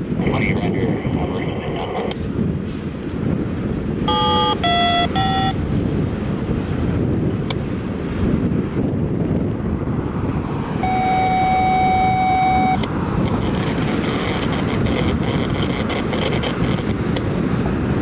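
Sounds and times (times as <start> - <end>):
steady tone: 4.0 - 5.6, 10.8 - 17.1.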